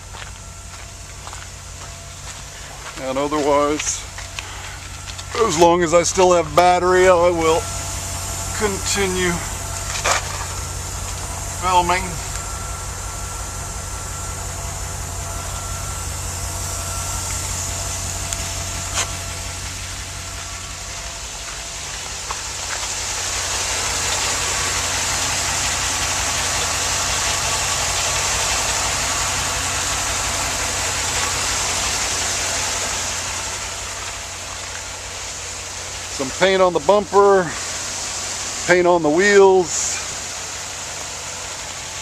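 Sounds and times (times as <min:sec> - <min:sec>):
bus engine idling: 0:00.0 - 0:42.0
hiss: 0:00.0 - 0:42.0.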